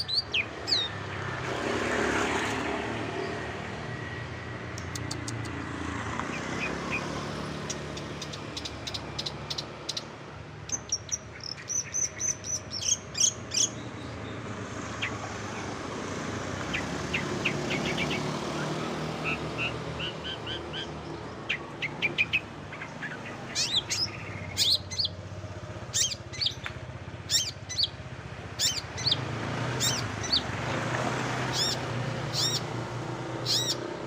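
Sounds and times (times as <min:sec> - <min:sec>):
songbird chirping: 0:00.0 - 0:01.5, 0:04.7 - 0:34.0.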